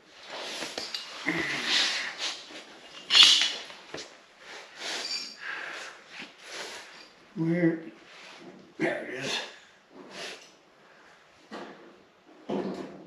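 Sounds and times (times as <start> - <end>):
scraping and rustling: 0.0 - 7.2.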